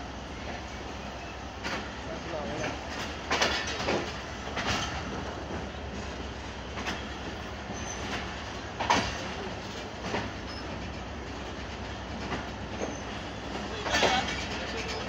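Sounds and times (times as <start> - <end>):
train wheels rumbling on track: 0.0 - 15.0
faint high wheel squeals: 7.7 - 8.2, 10.4 - 10.8, 12.8 - 15.0.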